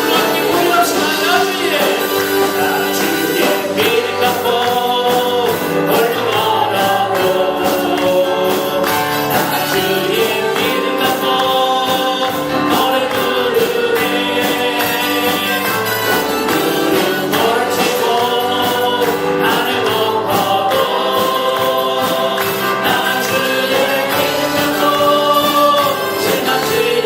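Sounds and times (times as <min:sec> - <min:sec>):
band accompaniment: 0:00.0 - 0:27.0
congregation singing a worship song: 0:00.0 - 0:27.0.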